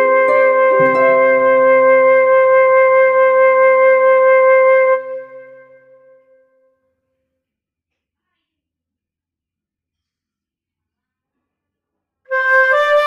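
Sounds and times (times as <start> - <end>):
long held music note: 0.0 - 3.1.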